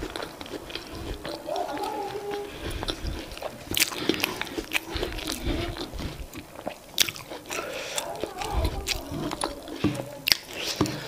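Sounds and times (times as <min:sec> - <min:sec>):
chewing soft food: 0:00.0 - 0:11.0
wet mouth clicks and smacks: 0:02.6 - 0:09.6.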